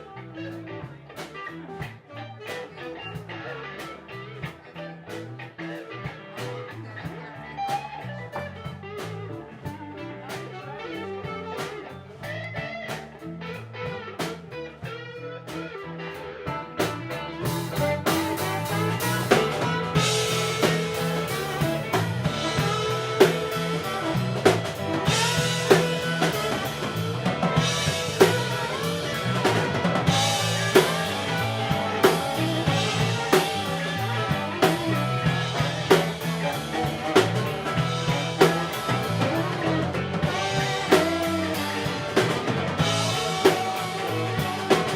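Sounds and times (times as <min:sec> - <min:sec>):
blues-rock band playing: 0:00.0 - 0:44.9
drum hits and cymbals: 0:16.8 - 0:44.9.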